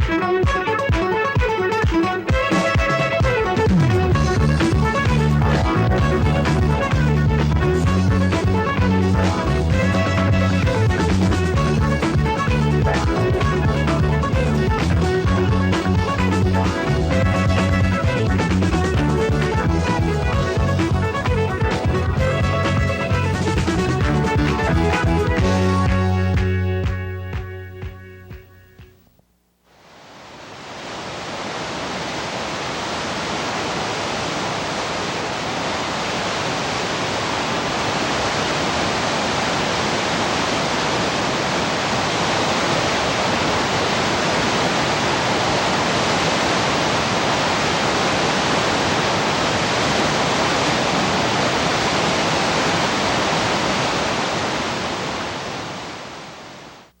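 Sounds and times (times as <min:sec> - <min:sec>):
steady rushing noise: 0:30.0 - 0:56.8.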